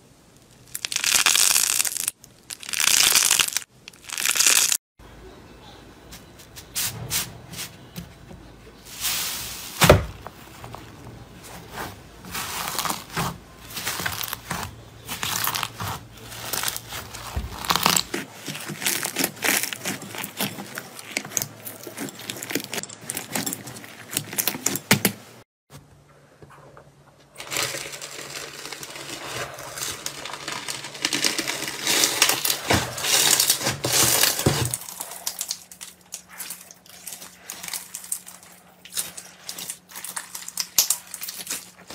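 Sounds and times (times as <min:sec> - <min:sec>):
slime crackling and popping: 0:00.4 - 0:04.8, 0:12.3 - 0:24.8, 0:27.4 - 0:41.9.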